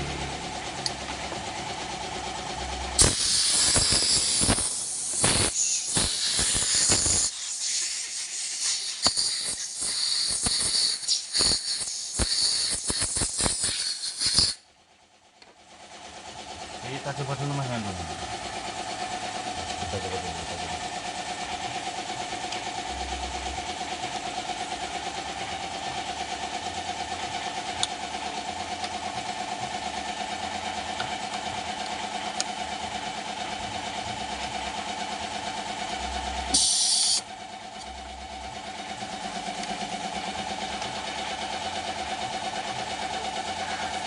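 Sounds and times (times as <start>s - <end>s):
short loud hiss: 36.6s - 37.2s.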